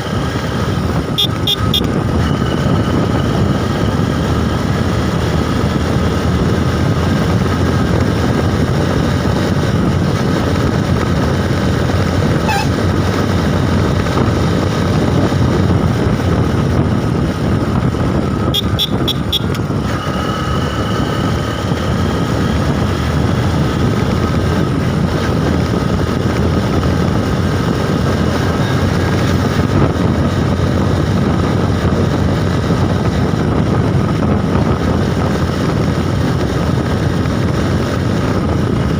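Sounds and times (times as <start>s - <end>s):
motorcycle engine rumbling: 0.0s - 38.9s
wind rushing over microphone: 0.0s - 38.9s
short high beeps: 1.2s - 2.4s, 12.4s - 12.8s.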